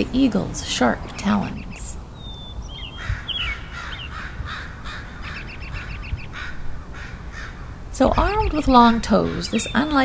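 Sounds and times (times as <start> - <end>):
high falling bird chirp: 1.0 - 10.0
harsh caw-like bird calls: 2.2 - 7.9.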